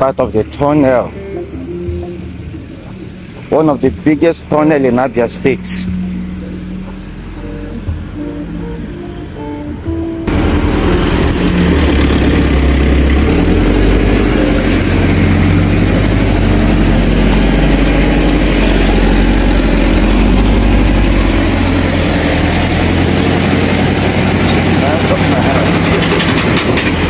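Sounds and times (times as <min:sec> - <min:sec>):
heavy engine running: 0:00.0 - 0:27.0.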